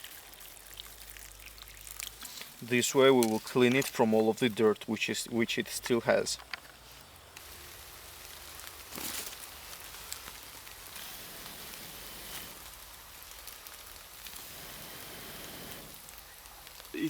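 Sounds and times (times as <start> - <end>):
rain drop ticks: 0.0 - 11.0, 12.5 - 17.0
light rain hiss: 0.0 - 17.0.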